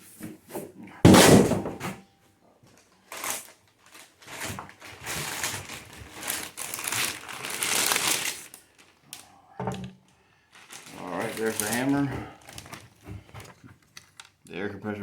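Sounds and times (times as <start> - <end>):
packaging rustling and crinkling: 2.6 - 14.4.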